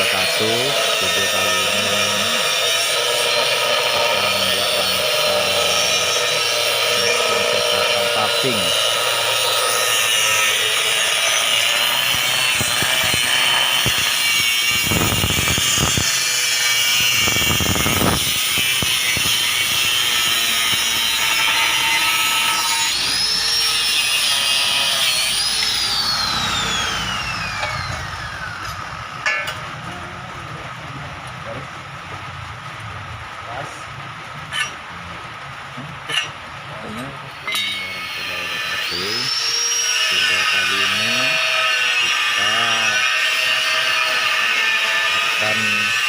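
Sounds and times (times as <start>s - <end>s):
cut-off disc grinding steel: 0.0s - 30.1s, 33.9s - 35.0s, 35.8s - 46.0s.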